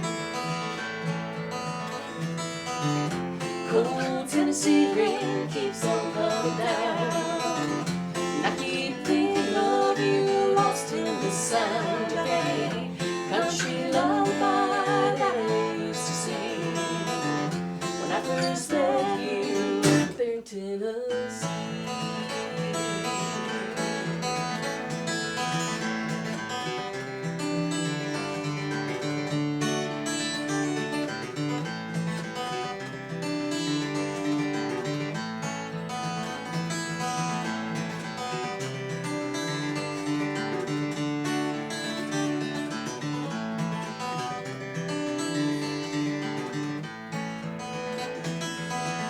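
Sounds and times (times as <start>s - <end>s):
acoustic guitar playing: 0.0s - 20.4s, 21.1s - 49.0s.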